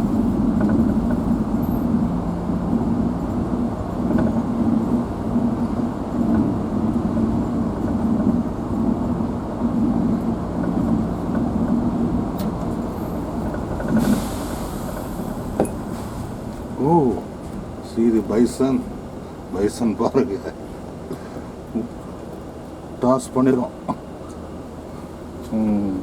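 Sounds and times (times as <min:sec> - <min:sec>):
vehicle engine from inside cab: 0:00.0 - 0:19.6
short hiss: 0:14.0 - 0:15.2.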